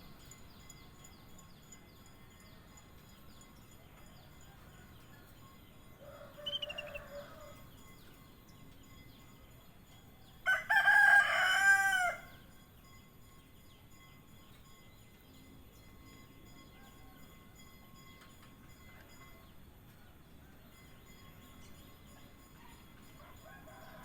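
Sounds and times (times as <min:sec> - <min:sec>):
rooster crowing: 0:06.0 - 0:07.6, 0:10.4 - 0:12.3, 0:23.2 - 0:24.0
bird call with high trill: 0:06.0 - 0:08.2
faint small-bird chirps: 0:06.3 - 0:09.4.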